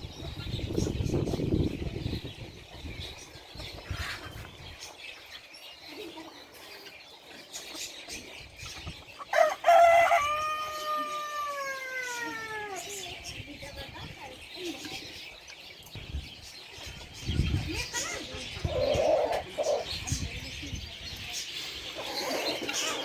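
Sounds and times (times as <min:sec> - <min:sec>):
rooster crowing: 0:09.3 - 0:12.8.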